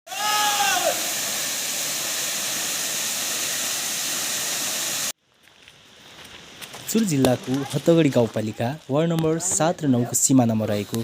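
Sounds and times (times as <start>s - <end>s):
waterfall roaring: 0.1s - 5.1s.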